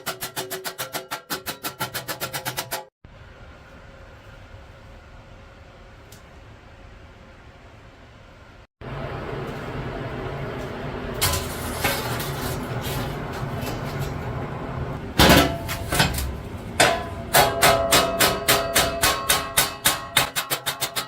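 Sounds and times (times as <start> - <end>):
hammer striking steel on anvil: 15.2 - 21.0.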